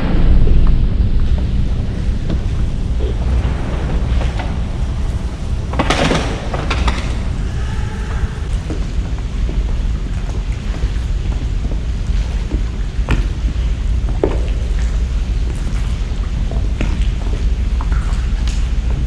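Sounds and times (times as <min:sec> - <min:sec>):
wind buffeting microphone: 0:00.0 - 0:14.2.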